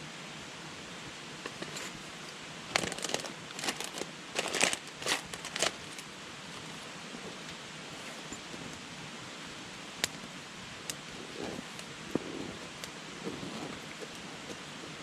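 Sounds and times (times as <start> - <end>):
campfire hissing: 0.0 - 15.0
fire crackles and pops: 9.9 - 15.0.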